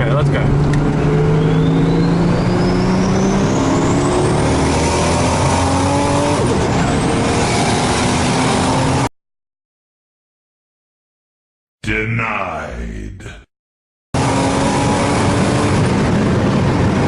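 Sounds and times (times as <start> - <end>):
car engine accelerating: 0.0 - 9.1, 14.2 - 17.0.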